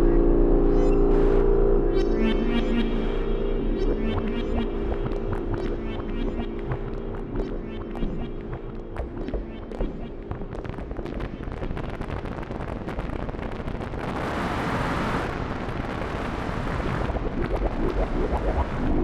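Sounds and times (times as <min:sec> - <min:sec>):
low rumble: 0:00.0 - 0:11.4
synthesizer rapid clicks: 0:02.2 - 0:13.8.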